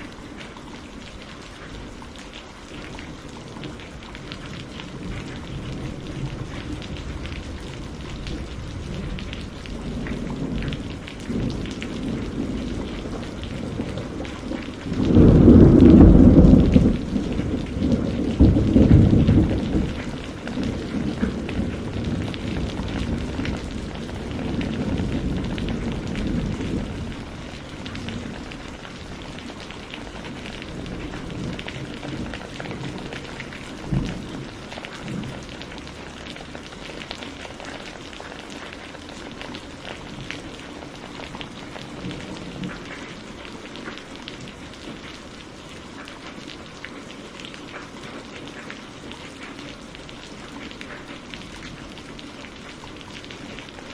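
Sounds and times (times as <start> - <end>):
rain pattering: 0.0 - 53.9
thunder rumble: 3.5 - 37.6
sharp thunder crack: 14.9 - 23.6.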